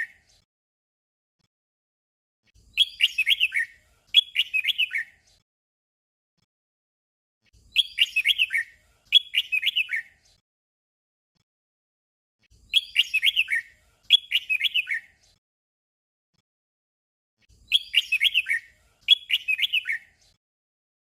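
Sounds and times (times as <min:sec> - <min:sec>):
bird singing descending notes: 0:02.8 - 0:05.1, 0:07.7 - 0:10.1, 0:12.7 - 0:15.1, 0:17.6 - 0:20.1.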